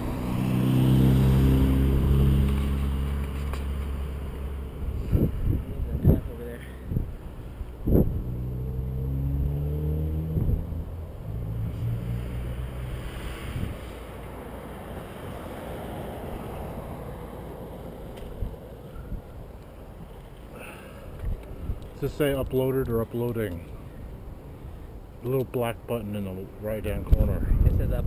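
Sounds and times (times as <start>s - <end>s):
wind noise on microphone: 4.8s - 14.1s, 21.2s - 23.0s, 26.9s - 28.0s.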